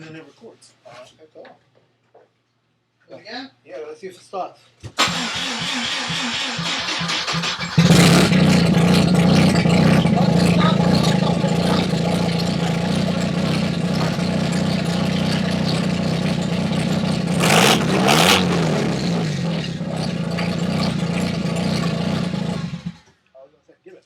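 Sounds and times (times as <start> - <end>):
rotary engine idling and revving: 5.0 - 23.1.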